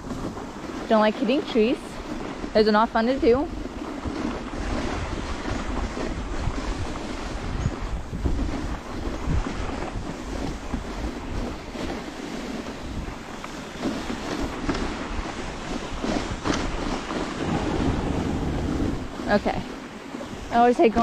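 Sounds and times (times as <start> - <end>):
wind on microphone: 0.0 - 21.0
sled hissing over snow: 10.1 - 14.6, 15.3 - 21.0
sled bumping knocks: 16.4 - 19.7.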